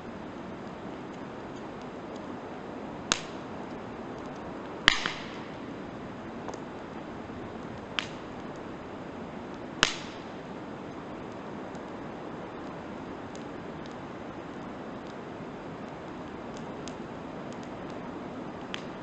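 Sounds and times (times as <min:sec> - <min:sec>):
campfire crackling and popping: 0:00.0 - 0:19.0
low hiss of fire: 0:00.0 - 0:19.0.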